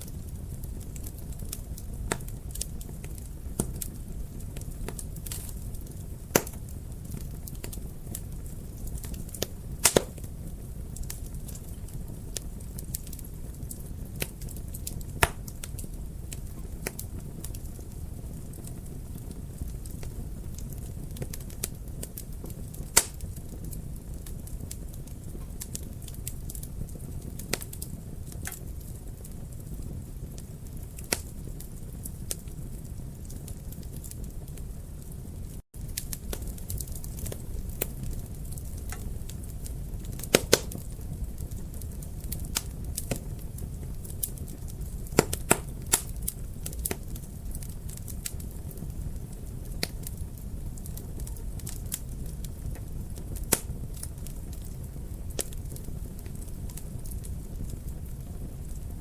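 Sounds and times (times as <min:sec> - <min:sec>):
low rumble of flames: 0:00.0 - 0:59.0
wood fire crackling and popping: 0:00.0 - 0:59.0
loud sharp pop of fire: 0:06.3 - 0:07.2, 0:09.4 - 0:10.3, 0:15.1 - 0:15.6, 0:22.8 - 0:23.4, 0:40.1 - 0:40.9, 0:45.0 - 0:47.0, 0:53.4 - 0:54.0.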